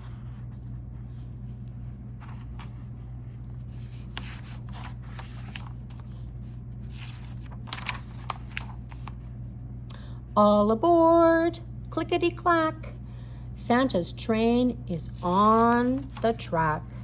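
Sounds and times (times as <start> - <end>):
paper rustling and scraping: 0.0 - 9.3, 15.2 - 16.5
low electrical hum: 0.0 - 17.0.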